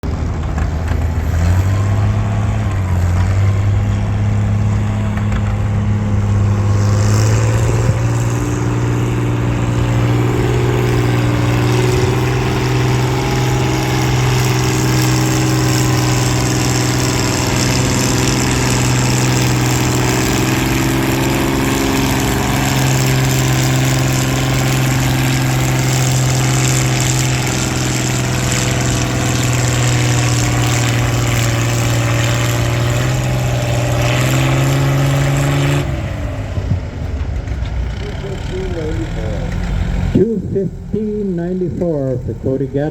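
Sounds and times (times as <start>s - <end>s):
tractor engine under load: 0.0s - 42.9s.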